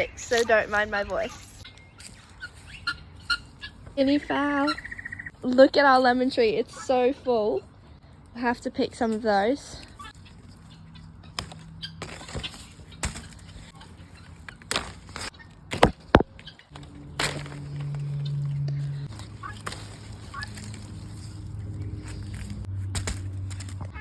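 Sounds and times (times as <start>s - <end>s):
guinea fowl calling: 1.2s - 5.3s.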